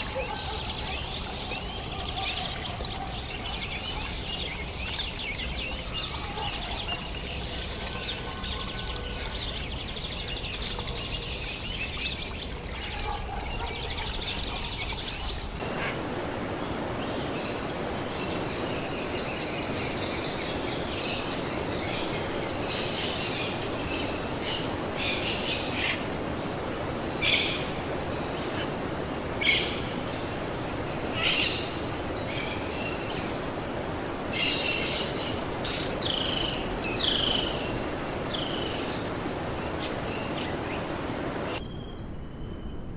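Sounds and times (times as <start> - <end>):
birds chirping: 0.0 - 17.7
background hiss: 0.0 - 41.6.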